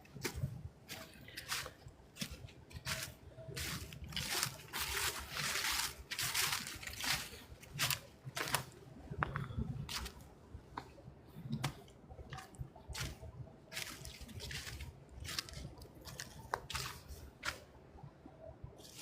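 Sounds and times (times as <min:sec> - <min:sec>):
footsteps crunching dry leaves: 0:00.2 - 0:08.8, 0:12.3 - 0:17.6.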